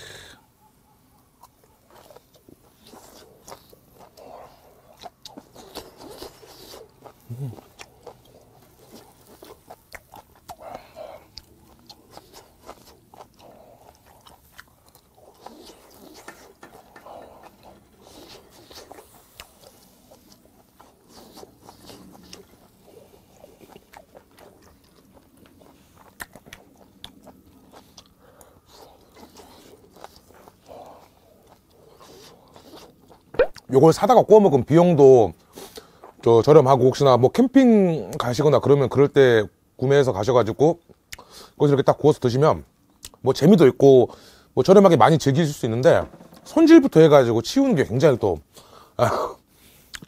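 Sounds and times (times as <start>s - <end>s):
person chewing wetly: 1.2s - 33.7s, 40.9s - 41.5s, 49.6s - 50.0s.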